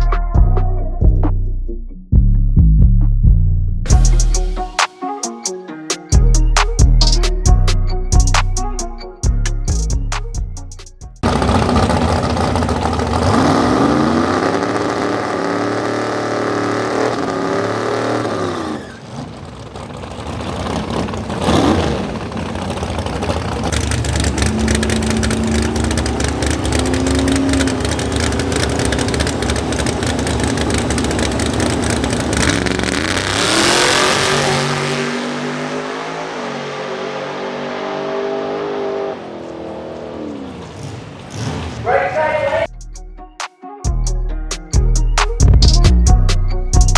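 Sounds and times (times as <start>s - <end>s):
drag race car accelerating: 11.2s - 42.7s.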